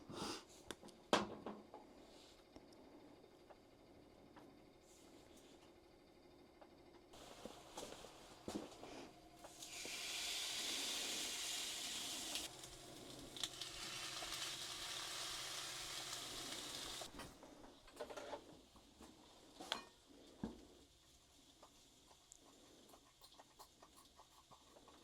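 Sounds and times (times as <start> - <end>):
food sizzling in a pan: 7.2 - 17.3.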